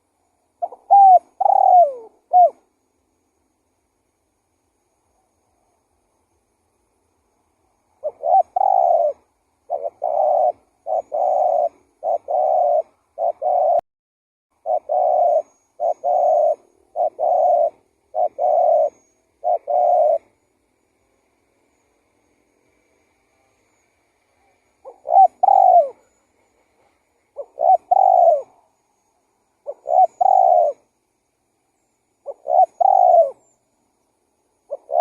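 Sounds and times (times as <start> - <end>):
dove cooing: 0.6 - 2.7, 8.0 - 13.8, 14.6 - 20.4, 24.4 - 28.8, 29.6 - 30.9, 32.2 - 33.6, 34.6 - 35.0.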